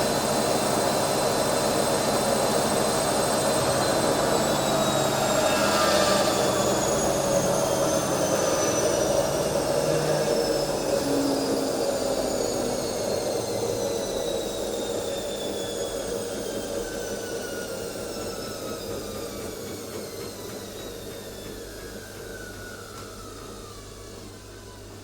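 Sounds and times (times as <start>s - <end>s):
electric motor winding down: 0.2s - 24.8s.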